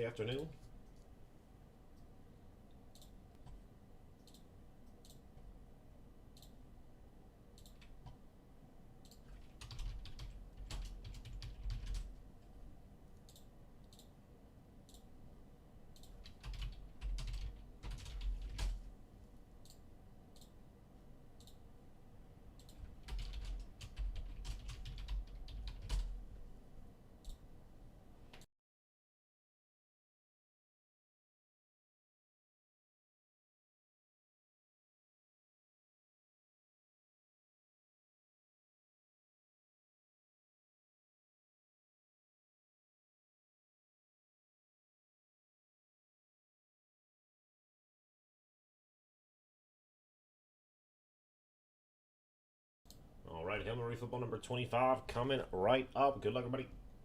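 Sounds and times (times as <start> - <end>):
typing on keyboard: 9.1 - 12.2, 16.0 - 18.8, 22.6 - 26.2.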